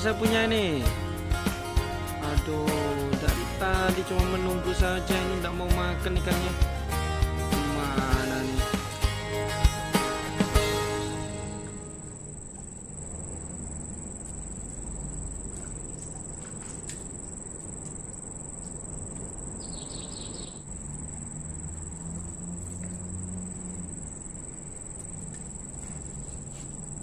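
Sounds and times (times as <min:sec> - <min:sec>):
insects droning: 0:00.0 - 0:27.0
low outdoor rumble: 0:10.6 - 0:27.0.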